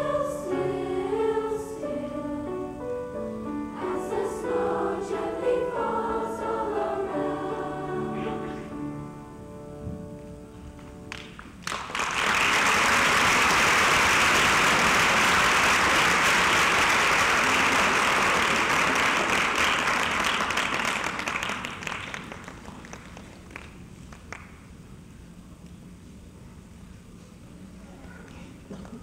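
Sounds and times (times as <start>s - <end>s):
audience applauding: 11.1s - 24.6s.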